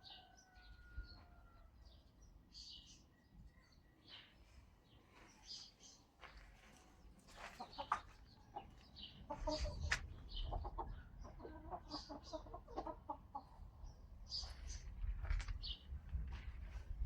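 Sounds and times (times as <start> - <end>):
chickens clucking: 7.2 - 13.8.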